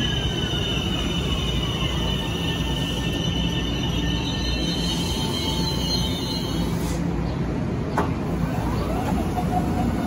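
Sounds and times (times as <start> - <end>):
train brake and wheel squeal: 0.0 - 7.2
train low rumble: 0.0 - 10.0.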